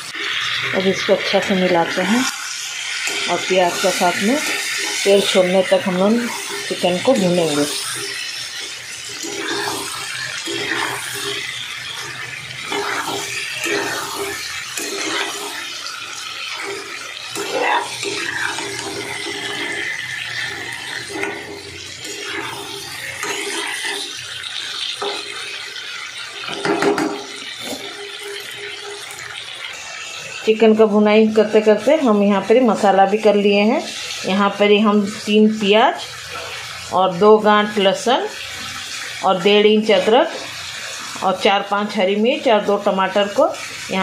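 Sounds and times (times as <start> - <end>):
metal spatula scraping pan: 0.0 - 29.6
chicken sizzling in oil: 0.0 - 44.0.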